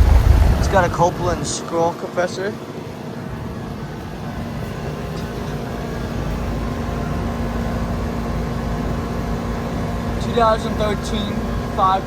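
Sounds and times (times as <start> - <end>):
compressor hum: 0.0 - 12.0
condenser fan whoosh: 0.0 - 12.0.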